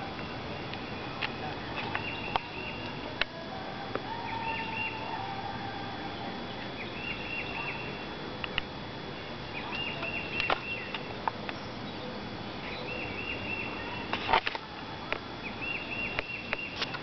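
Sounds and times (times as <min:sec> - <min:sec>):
songbird singing descending notes: 0:01.8 - 0:03.0, 0:04.1 - 0:08.0, 0:11.5 - 0:14.1, 0:15.4 - 0:16.8.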